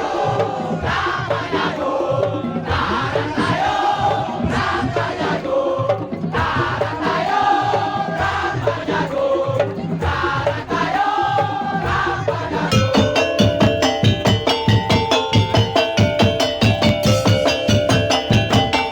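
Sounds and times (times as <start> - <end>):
drum beats: 0.0 - 18.9
fast ringing struck percussion: 0.0 - 18.9
sung or blown melody: 12.7 - 18.9.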